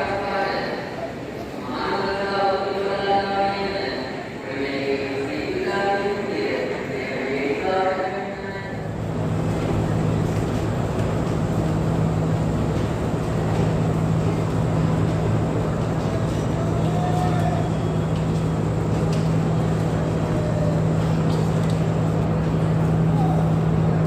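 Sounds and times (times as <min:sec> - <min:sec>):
diesel train engine running: 0:08.5 - 0:24.0.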